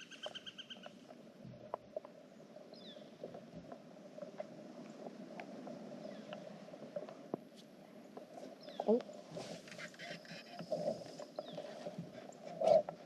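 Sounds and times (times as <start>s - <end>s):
faint ticks and clicks: 0.8s - 2.2s, 3.2s - 7.5s.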